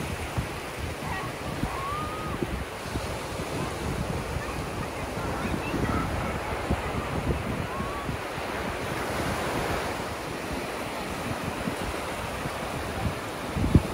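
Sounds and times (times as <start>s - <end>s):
surf on a sandy beach: 0.0s - 13.9s
wind buffeting microphone: 0.0s - 13.9s.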